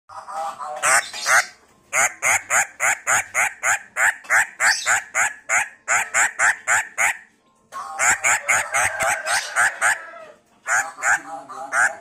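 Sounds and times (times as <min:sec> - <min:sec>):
bird giving harsh calls: 0:00.8 - 0:07.3, 0:10.7 - 0:12.0.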